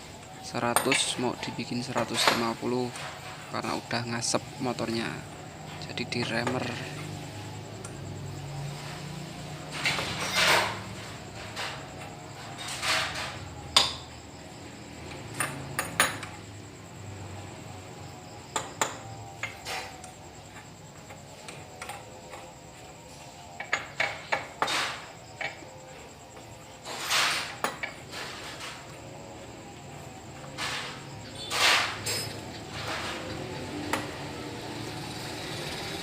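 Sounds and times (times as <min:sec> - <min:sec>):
metal tools clinking: 0:31.4 - 0:33.4.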